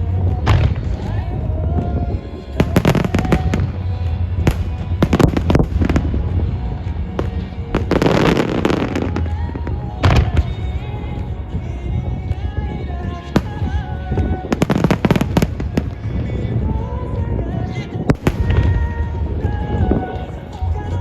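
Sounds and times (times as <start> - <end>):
music: 0.0 - 21.0
firework shells bursting: 13.4 - 16.7, 18.1 - 20.4.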